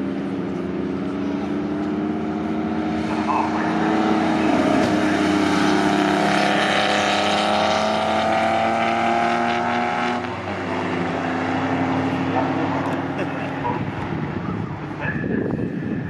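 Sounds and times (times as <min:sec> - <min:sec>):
racing car engines running hard: 0:00.0 - 0:16.0.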